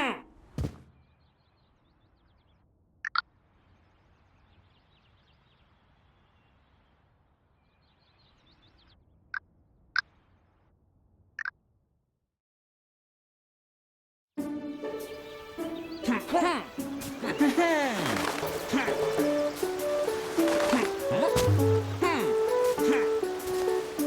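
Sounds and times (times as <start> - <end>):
distant high twittering: 14.8 - 24.0.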